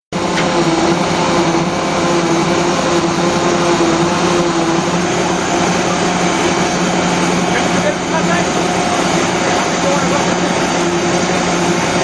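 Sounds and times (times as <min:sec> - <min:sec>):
engine running steadily: 0:00.1 - 0:12.0.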